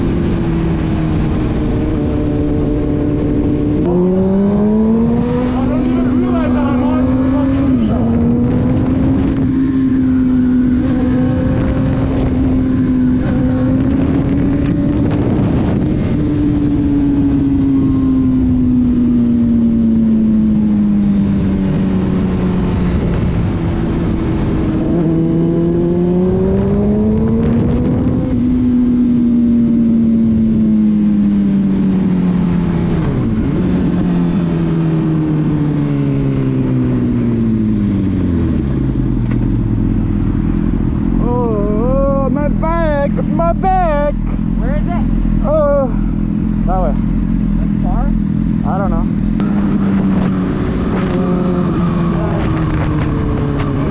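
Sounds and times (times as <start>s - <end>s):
tyre and road noise: 0.0s - 53.9s
car engine running: 37.0s - 53.9s.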